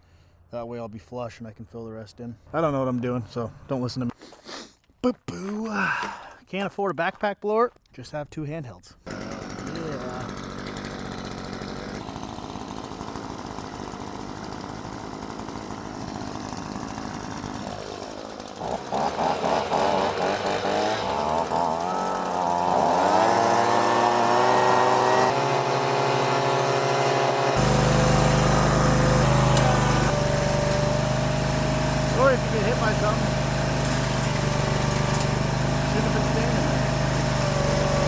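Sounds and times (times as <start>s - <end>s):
leaf blower engine revving: 9.1s - 38.0s
steady machine noise: 21.8s - 38.0s.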